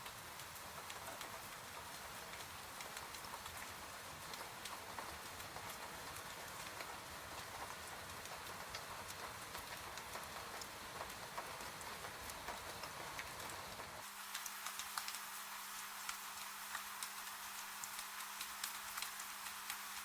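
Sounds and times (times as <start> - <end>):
steady rain: 0.0 - 20.0
sharp drips: 7.4 - 20.0.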